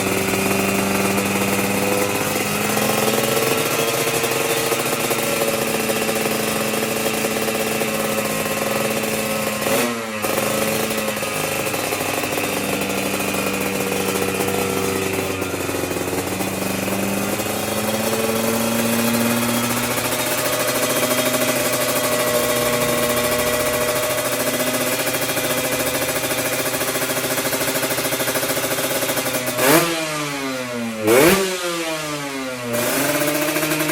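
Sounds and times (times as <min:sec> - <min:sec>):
motorcycle idling: 0:00.0 - 0:33.9.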